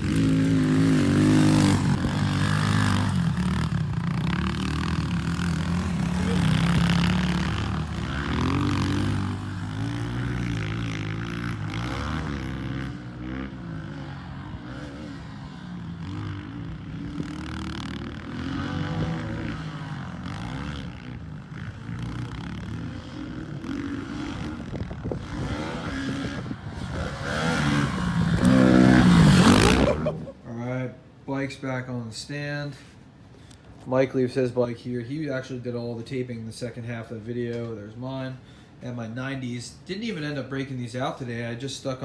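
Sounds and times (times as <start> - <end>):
motorbike engine revving: 0.0 - 30.3.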